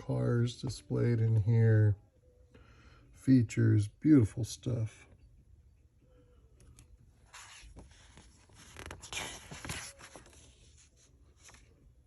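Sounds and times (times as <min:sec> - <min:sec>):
magazine pages rustling: 0:07.2 - 0:12.0.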